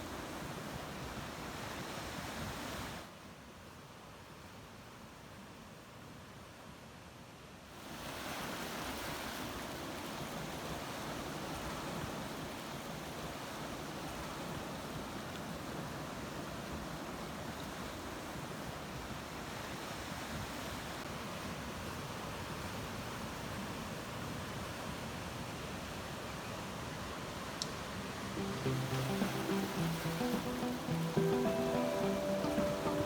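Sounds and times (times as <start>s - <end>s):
ocean waves washing: 26.8s - 33.0s.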